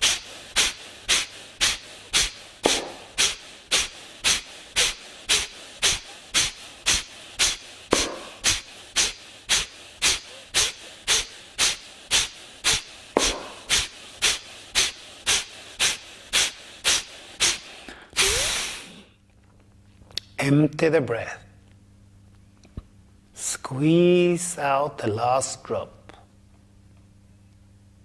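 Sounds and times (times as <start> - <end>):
forceful nasal exhalations: 0.0 - 19.1.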